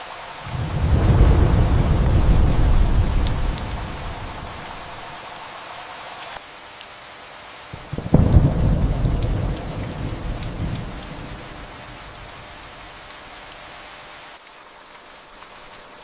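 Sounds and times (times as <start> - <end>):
steady rain falling: 0.0 - 16.0
thunderclap rumbling: 0.4 - 5.2, 7.8 - 12.8.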